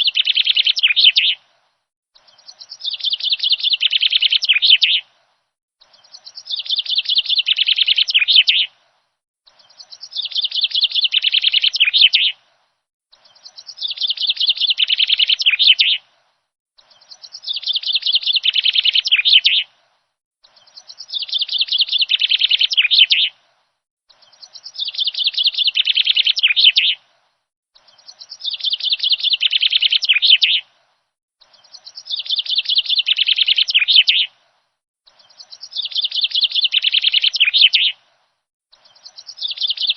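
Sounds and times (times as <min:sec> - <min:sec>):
songbird trilling: 0:00.0 - 0:01.4, 0:02.2 - 0:05.0, 0:05.9 - 0:08.7, 0:09.5 - 0:12.4, 0:13.2 - 0:16.0, 0:16.9 - 0:19.7, 0:20.5 - 0:23.4, 0:24.2 - 0:27.0, 0:27.8 - 0:30.6, 0:31.4 - 0:34.3, 0:35.1 - 0:38.0, 0:38.8 - 0:39.9.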